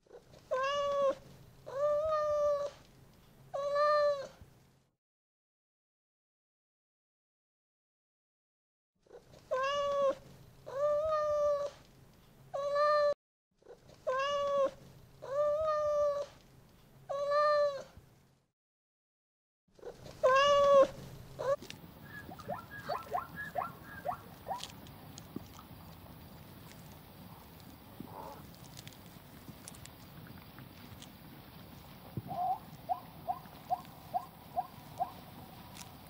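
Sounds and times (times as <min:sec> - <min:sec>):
animal drawn-out calls: 0:19.8 - 0:28.9, 0:29.6 - 0:35.9.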